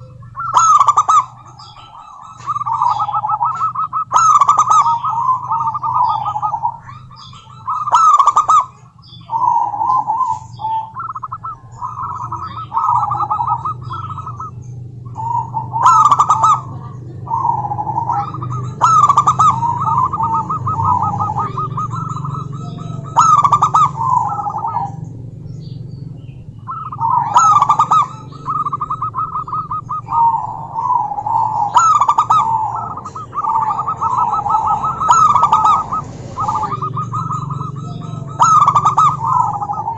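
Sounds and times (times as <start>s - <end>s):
doves cooing: 0.0s - 39.9s
low steady hum: 0.0s - 39.9s.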